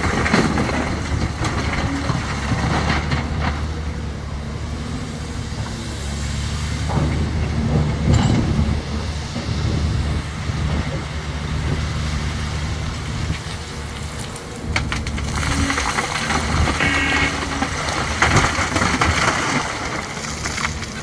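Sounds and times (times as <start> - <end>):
diesel construction machinery running: 0.0 - 21.0
sharp metal clanks and knocks: 6.9 - 8.9.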